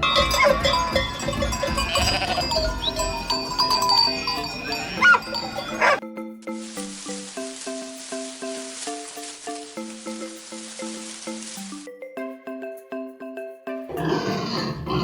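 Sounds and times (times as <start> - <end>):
animal bleating: 0.0 - 3.6
music with plucked notes: 0.0 - 15.0.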